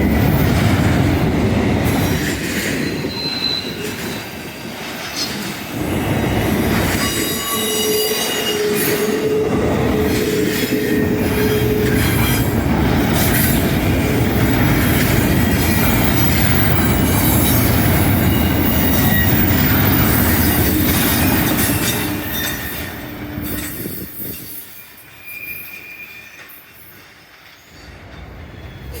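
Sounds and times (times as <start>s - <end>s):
train rolling past: 0.0s - 29.0s
wheels squealing on rails: 1.8s - 29.0s.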